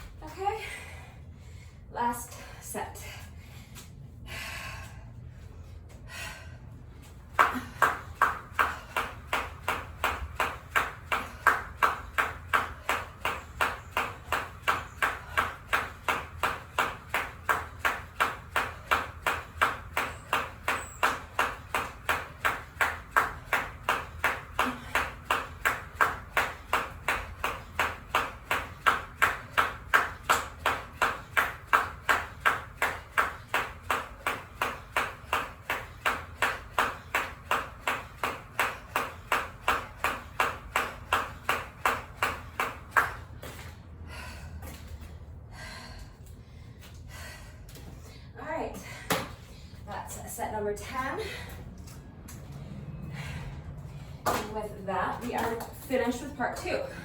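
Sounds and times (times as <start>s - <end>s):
jump rope slapping the floor: 7.0s - 45.2s, 48.7s - 50.1s, 53.9s - 57.0s.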